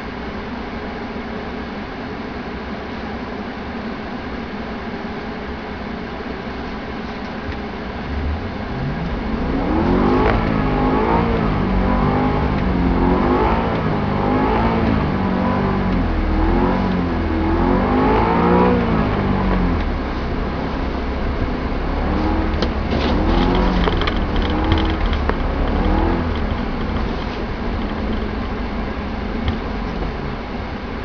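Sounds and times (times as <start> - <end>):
car engine revving: 7.0 - 31.0.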